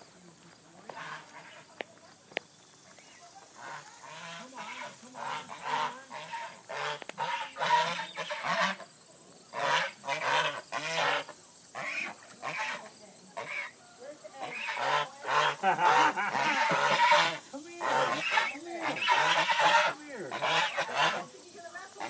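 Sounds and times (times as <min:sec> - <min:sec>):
birds calling: 0:00.0 - 0:22.0.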